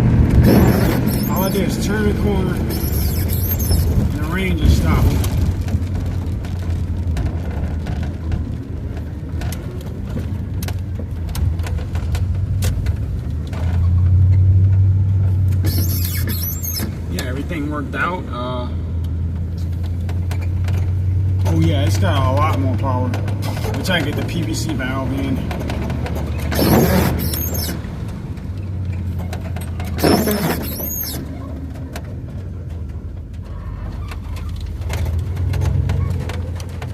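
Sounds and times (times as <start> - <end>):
van engine droning: 0.0 - 36.9
rushing sound with high squeak: 0.3 - 5.6, 15.4 - 17.4, 23.3 - 32.4.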